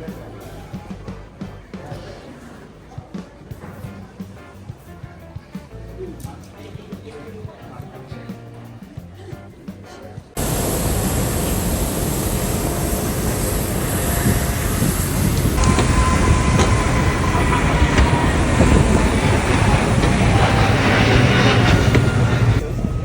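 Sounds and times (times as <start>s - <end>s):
moving vehicle rumble and rattle: 10.4s - 23.0s.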